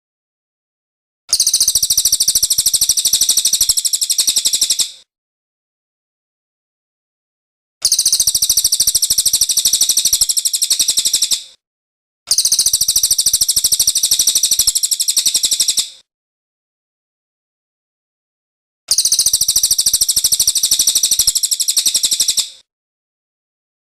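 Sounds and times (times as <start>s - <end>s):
songbird chattering trills: 7.9s - 11.4s.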